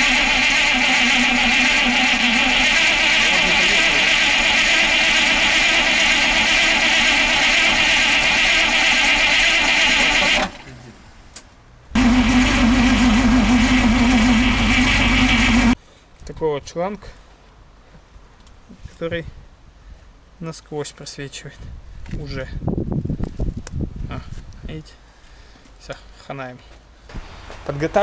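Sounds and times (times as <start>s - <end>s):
vehicle engine running: 0.0s - 10.5s, 12.0s - 15.8s.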